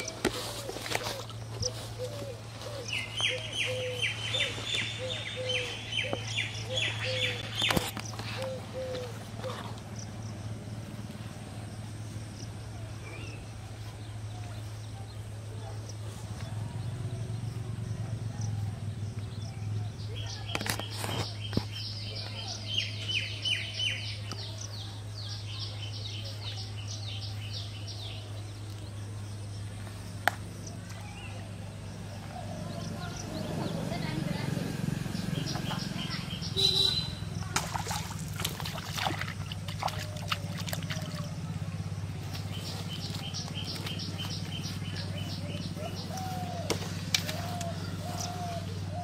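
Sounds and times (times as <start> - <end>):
lower repeated bird call: 0.0 - 9.8, 35.0 - 37.5
bird chirping: 0.0 - 10.9, 12.3 - 37.6, 39.2 - 49.0
steady low hum: 0.0 - 20.4.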